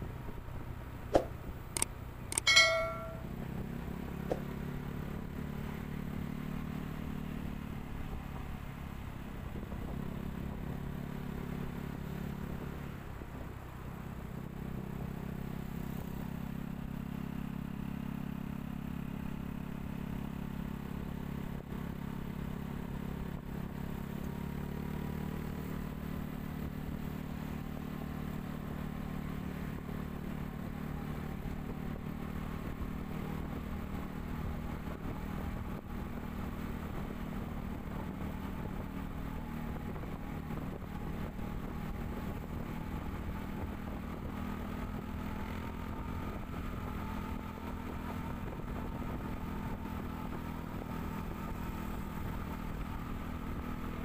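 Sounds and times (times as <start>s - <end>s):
vehicle engine running: 0.0s - 54.0s
brief high-pitched tone: 2.4s - 3.3s.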